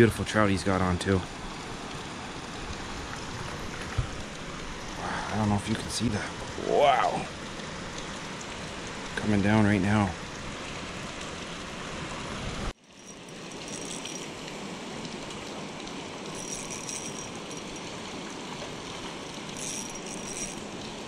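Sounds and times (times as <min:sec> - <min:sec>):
river water rushing: 0:01.2 - 0:09.2, 0:10.1 - 0:21.0
short high-pitched rattling: 0:12.9 - 0:14.4, 0:16.3 - 0:17.9, 0:19.6 - 0:20.7.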